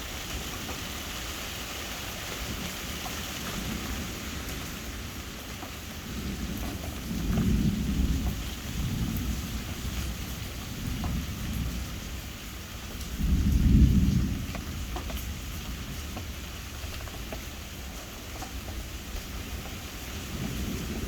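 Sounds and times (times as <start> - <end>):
steady rain: 0.0 - 21.0
distant thunder rumbling: 2.4 - 21.0.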